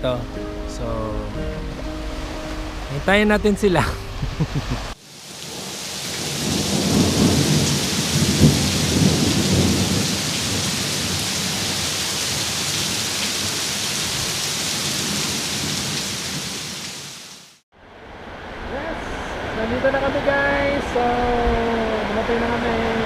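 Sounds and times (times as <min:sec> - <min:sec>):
low rumble: 0:00.0 - 0:05.0
heavy rain pouring: 0:00.8 - 0:23.0.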